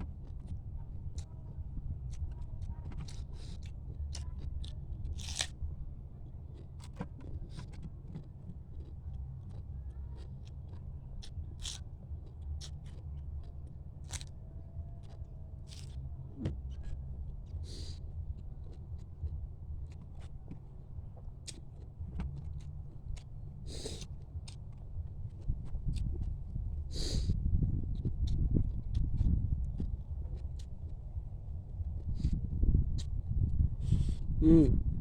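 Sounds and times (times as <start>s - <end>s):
low hum: 0.0s - 35.0s
crab shell crunching: 3.0s - 5.6s, 6.6s - 13.0s, 14.0s - 14.4s, 15.0s - 16.0s.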